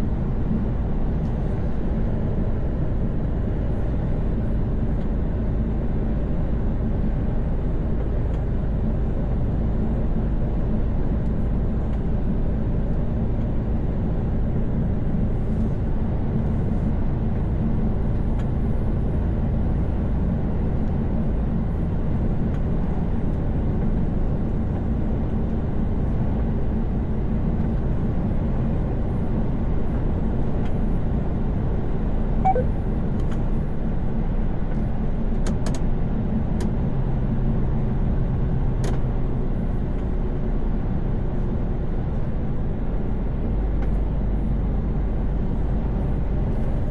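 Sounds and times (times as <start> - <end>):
truck engine and tyres drone: 0.0 - 46.9
short high blip: 32.4 - 32.8.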